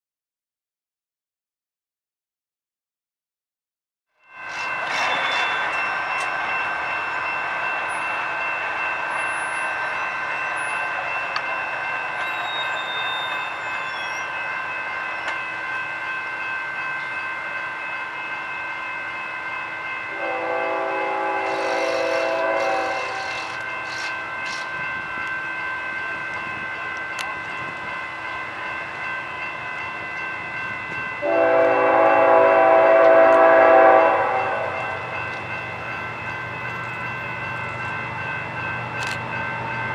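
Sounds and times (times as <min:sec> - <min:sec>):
freight train: 0:04.1 - 0:39.9
crossing bell ringing: 0:04.2 - 0:39.9
locomotive horn: 0:20.1 - 0:23.5, 0:31.2 - 0:34.9.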